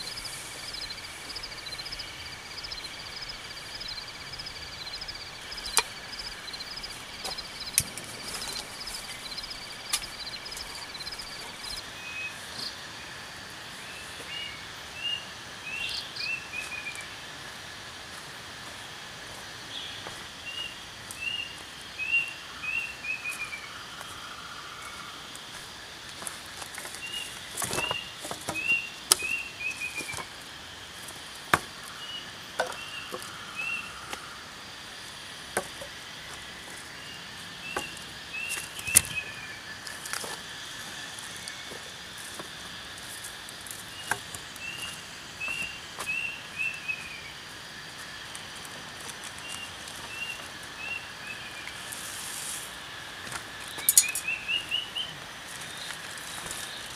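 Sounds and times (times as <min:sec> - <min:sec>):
high chirps: 0:00.0 - 0:11.8
bird singing downward notes: 0:00.0 - 0:12.3
insect drone: 0:00.0 - 0:56.9.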